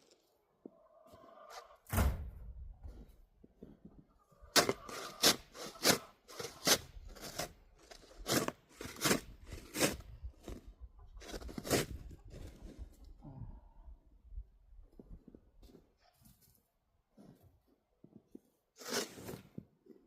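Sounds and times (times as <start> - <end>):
deep snow crunching: 4.5 - 12.8.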